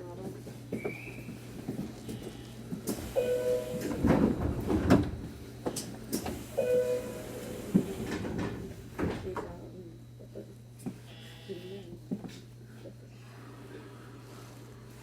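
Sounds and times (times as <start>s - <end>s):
sliding doors shutting: 2.8s - 9.5s
train door-closing chime: 3.0s - 4.7s, 6.3s - 8.7s.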